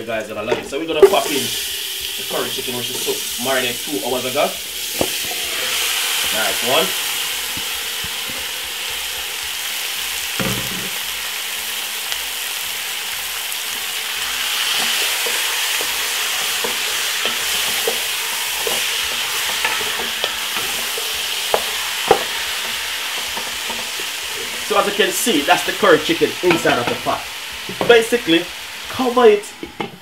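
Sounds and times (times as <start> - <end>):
chicken sizzling in hot oil: 0.2 - 29.8
wooden spoon knocking pot: 15.2 - 24.7.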